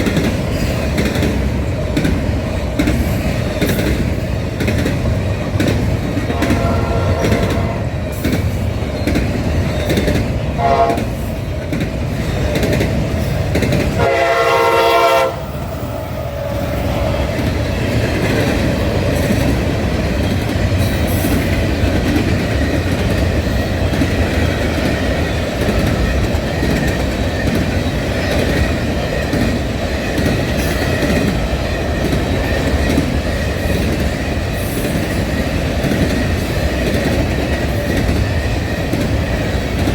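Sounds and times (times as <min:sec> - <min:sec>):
train wheels rumbling: 0:00.0 - 0:39.9
locomotive horn blasts: 0:06.3 - 0:07.9, 0:10.6 - 0:11.2, 0:14.0 - 0:17.4.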